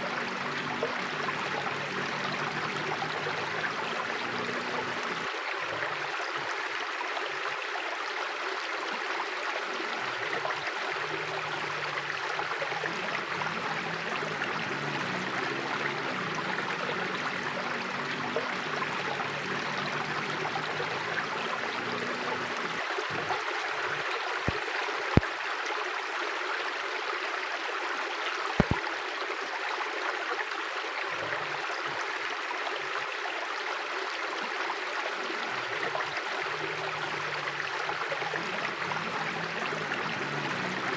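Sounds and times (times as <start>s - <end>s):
river water rushing: 0.0s - 27.6s, 28.6s - 40.9s
sharp clicks: 28.6s - 28.8s.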